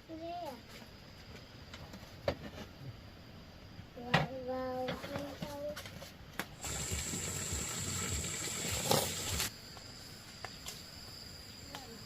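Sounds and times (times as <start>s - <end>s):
low-pitched insect tone: 0.0s - 4.9s, 6.5s - 12.0s
rustling hiss: 5.2s - 12.0s.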